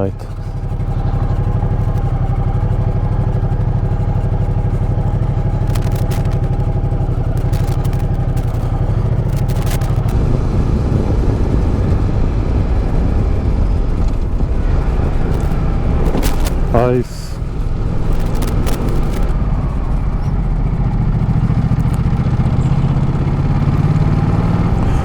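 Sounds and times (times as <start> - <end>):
motorcycle engine running: 0.0 - 25.0
sharp clicks: 0.3 - 10.2, 15.1 - 19.5.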